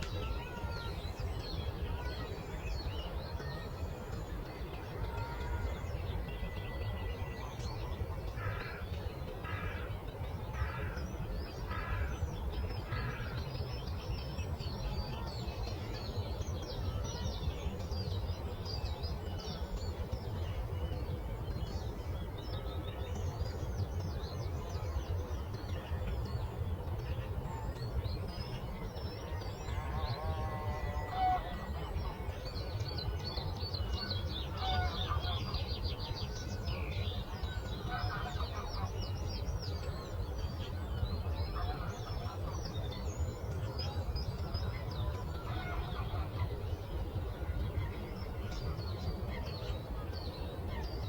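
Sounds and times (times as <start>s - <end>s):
low rumble of breeze: 0.0s - 51.0s
birds chirping and singing: 27.7s - 51.0s.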